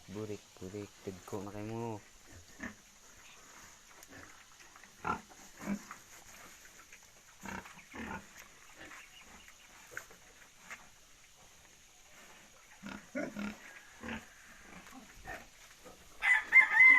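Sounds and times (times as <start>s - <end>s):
pigs grunting softly: 2.2s - 11.0s, 12.0s - 16.1s.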